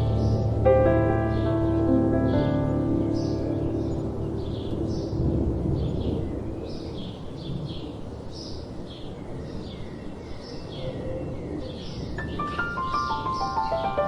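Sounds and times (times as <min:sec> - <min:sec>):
ambient keyboard music: 0:00.0 - 0:07.8, 0:12.2 - 0:14.0
low rumble of wind: 0:00.0 - 0:14.0
small birds chirping: 0:00.0 - 0:14.0.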